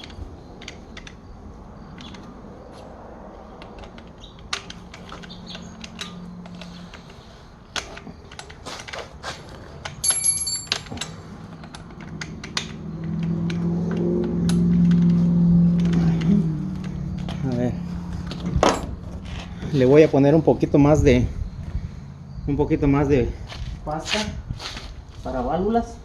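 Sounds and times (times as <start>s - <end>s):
ringing metallic clink: 10.0s - 11.2s.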